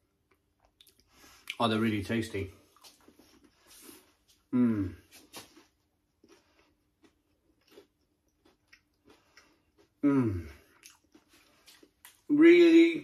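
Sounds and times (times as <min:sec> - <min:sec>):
person chewing crispy fries: 0:02.6 - 0:04.5, 0:05.2 - 0:12.3.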